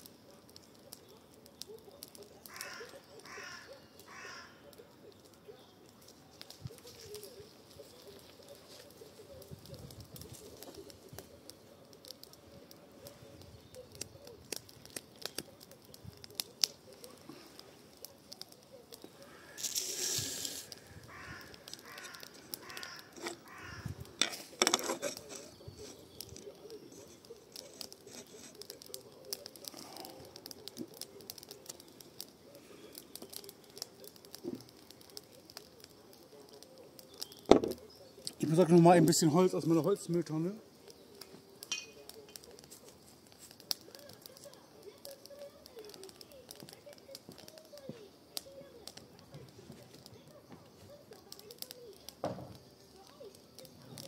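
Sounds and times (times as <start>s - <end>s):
garden fire crackling: 0.0s - 54.0s
short hiss: 19.3s - 20.8s.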